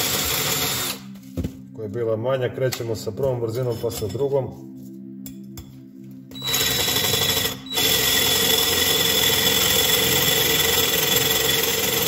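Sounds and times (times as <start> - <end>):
drill drilling into metal: 0.0 - 1.0, 6.4 - 12.0.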